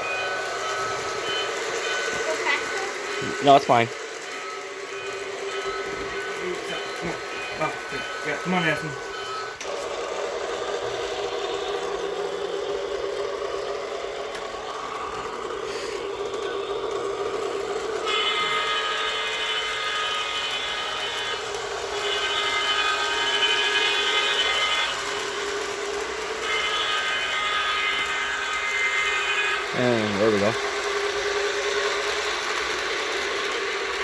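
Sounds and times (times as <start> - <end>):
high steady tone: 0.0 - 9.7
toy train motor whirring: 0.0 - 34.0.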